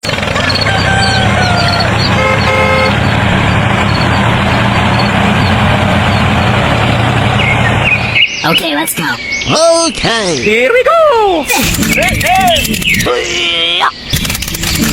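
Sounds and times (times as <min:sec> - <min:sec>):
engine running: 0:00.0 - 0:08.5, 0:11.5 - 0:13.1, 0:14.1 - 0:14.9
short horn toot: 0:02.2 - 0:03.0.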